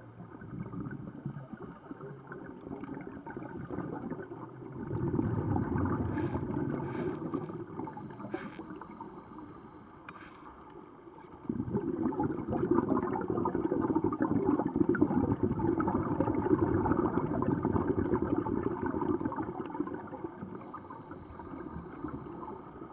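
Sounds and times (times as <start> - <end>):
rushing bubbling water: 0.0 - 9.3, 10.8 - 22.9
faint clicks: 9.5 - 11.6.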